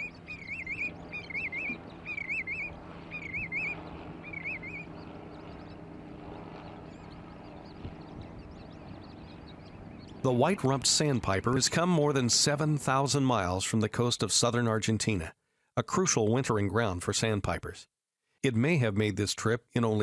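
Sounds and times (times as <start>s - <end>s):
bird warbling: 0.0s - 10.2s
steady low hum: 0.0s - 15.3s.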